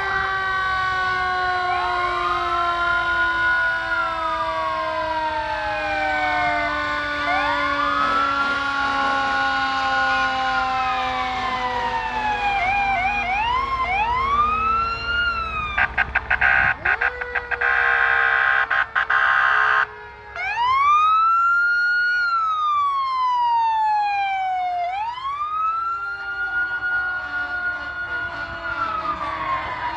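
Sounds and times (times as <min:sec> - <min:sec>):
fire truck sirens wailing: 0:00.0 - 0:29.9
rapid stuttering horn blasts: 0:15.8 - 0:19.8.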